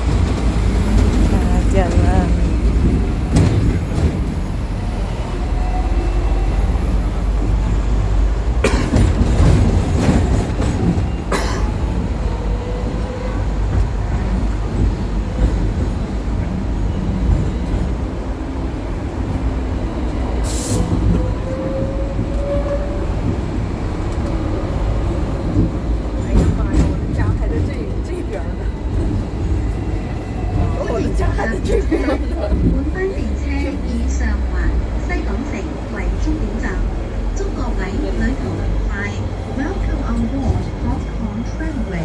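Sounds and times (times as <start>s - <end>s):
tram wheels and motor rumbling: 0.0s - 42.0s
wheels clacking over rail joints: 7.0s - 31.6s.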